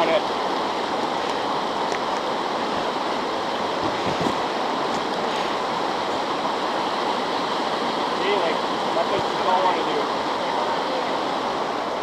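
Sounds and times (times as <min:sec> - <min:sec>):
river current rushing: 0:00.0 - 0:12.0.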